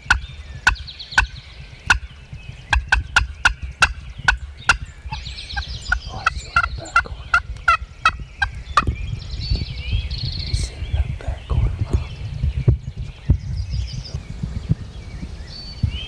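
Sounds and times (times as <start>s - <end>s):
wild turkey yelping: 0.0s - 8.9s
low rumble: 0.0s - 16.0s
songbirds chirping faintly: 0.0s - 16.0s.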